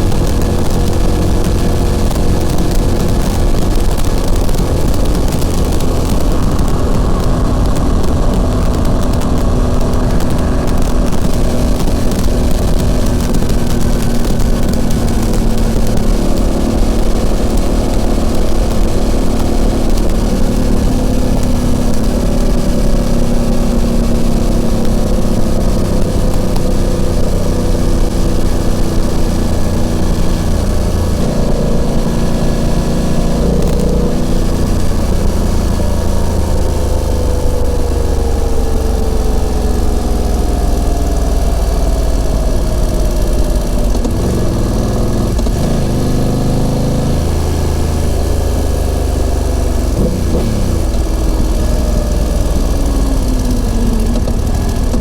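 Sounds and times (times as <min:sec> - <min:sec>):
wind rushing on microphone: 0:00.0 - 0:46.0
motorcycle engine and exhaust: 0:00.0 - 0:55.0.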